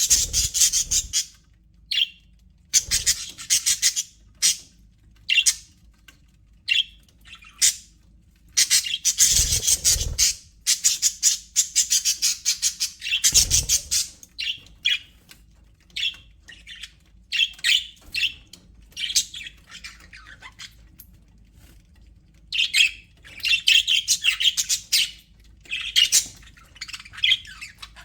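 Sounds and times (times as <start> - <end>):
budgerigars chattering and squawking: 0.0 - 2.1, 2.8 - 4.7, 5.3 - 5.7, 8.5 - 15.1, 22.6 - 28.0.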